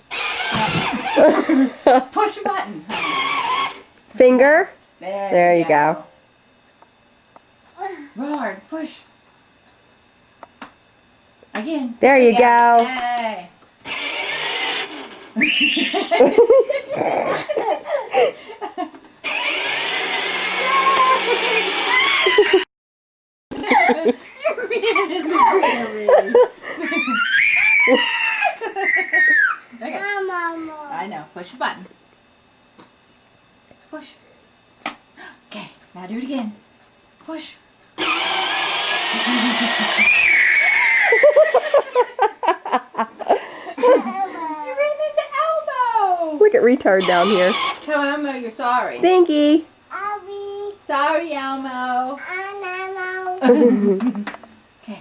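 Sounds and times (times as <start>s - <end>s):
electric toy motor whirring: 0.0s - 2.0s, 2.9s - 4.4s, 13.8s - 17.8s, 18.7s - 22.6s, 26.8s - 30.3s, 38.0s - 42.2s, 46.7s - 48.8s
hearty laughter: 0.6s - 2.1s, 15.6s - 18.9s, 22.2s - 22.6s, 23.6s - 27.2s, 39.2s - 40.0s, 41.0s - 44.5s, 53.4s - 54.3s.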